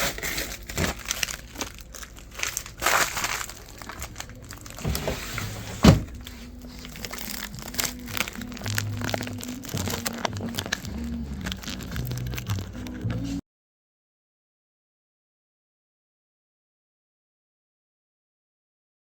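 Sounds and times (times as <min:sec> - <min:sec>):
crinkling handling noise: 0:00.0 - 0:13.4
music with low bass notes: 0:03.8 - 0:13.4.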